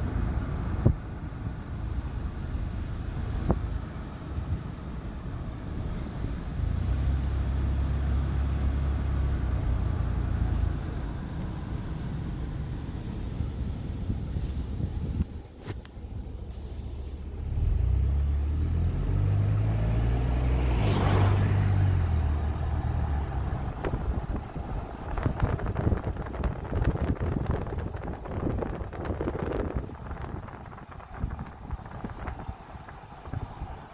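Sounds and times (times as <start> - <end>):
motor vehicle passing: 17.4 - 33.9.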